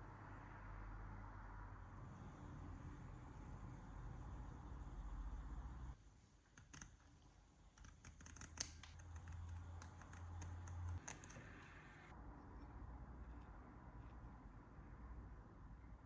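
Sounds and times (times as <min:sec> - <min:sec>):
small parts clicking: 0:07.8 - 0:11.5.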